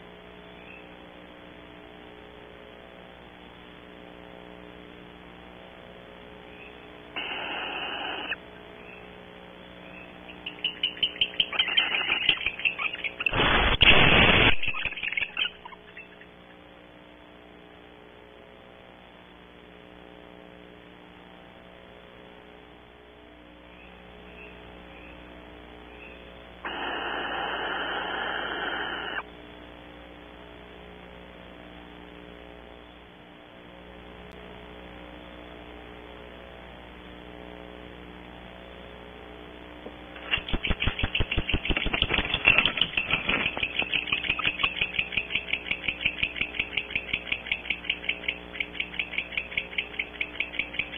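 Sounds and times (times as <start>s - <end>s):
electrical hum: 0.0s - 50.9s
hiss: 7.2s - 8.4s, 13.3s - 14.5s, 26.6s - 29.2s
owls chittering: 9.8s - 16.4s, 40.2s - 50.9s.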